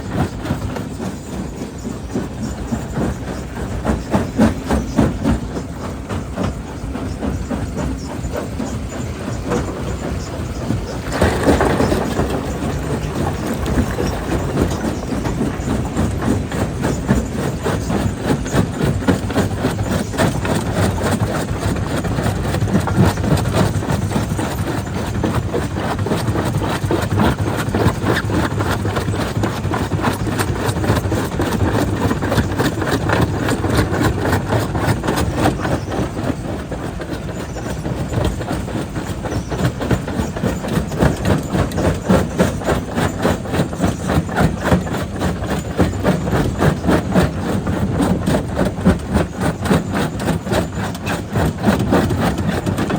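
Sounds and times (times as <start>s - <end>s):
crusher machine running: 0.0s - 52.9s
rock crusher clattering: 0.0s - 52.9s.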